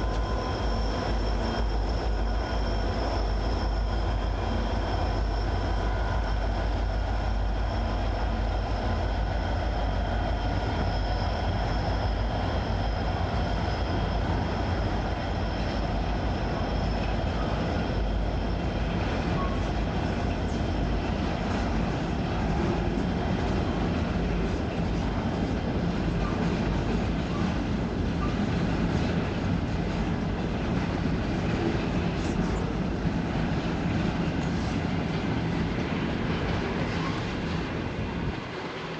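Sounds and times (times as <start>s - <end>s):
high wheel squeal: 0.0s - 7.1s
train rumbling past: 0.0s - 38.9s.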